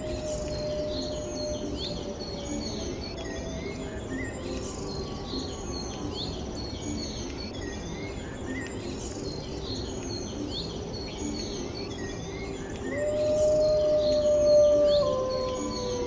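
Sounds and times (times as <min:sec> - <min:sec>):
wolf howling: 0:00.0 - 0:01.9, 0:12.9 - 0:16.0
small birds chirping: 0:00.0 - 0:16.0.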